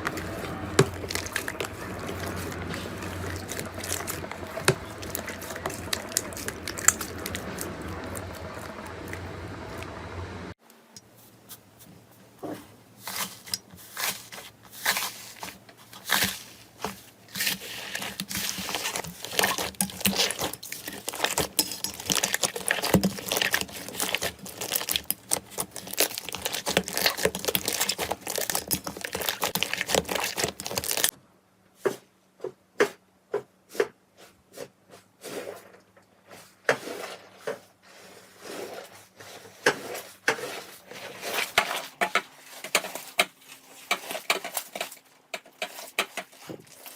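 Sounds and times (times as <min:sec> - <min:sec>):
slime crackling and popping: 0:00.0 - 0:09.3, 0:17.7 - 0:31.1.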